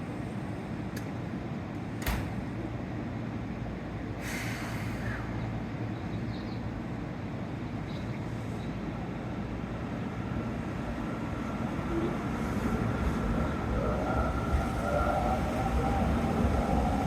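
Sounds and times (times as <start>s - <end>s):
short hiss of air: 4.2s - 5.3s.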